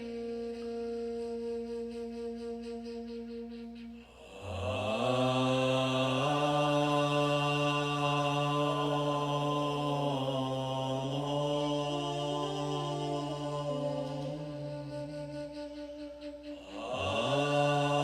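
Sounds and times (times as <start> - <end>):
man chanting: 4.0 - 18.0.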